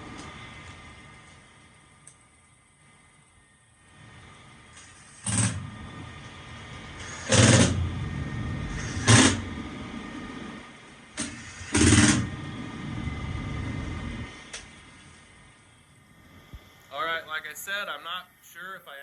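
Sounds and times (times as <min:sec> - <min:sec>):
gas furnace rumbling: 0:00.0 - 0:17.8.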